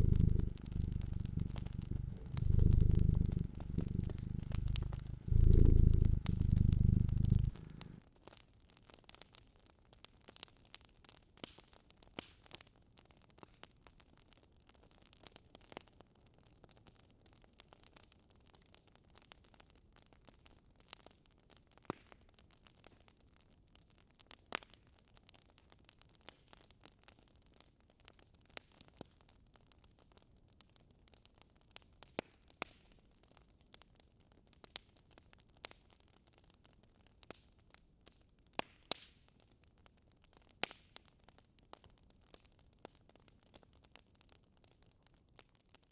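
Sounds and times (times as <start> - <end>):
fireplace crackling: 0.0 - 8.0
low hiss: 0.0 - 8.0.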